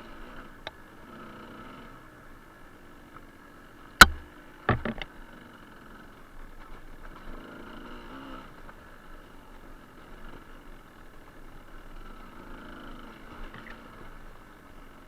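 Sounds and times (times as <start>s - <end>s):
motorcycle engine running low: 3.8s - 15.0s
motorcycle knocking over rocks: 4.0s - 5.2s.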